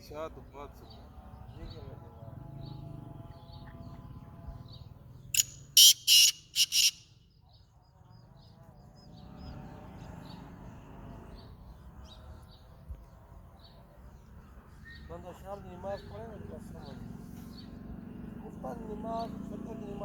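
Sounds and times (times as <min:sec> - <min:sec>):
francolin calling: 0:05.4 - 0:07.2
faint small bird chirps: 0:05.4 - 0:09.1.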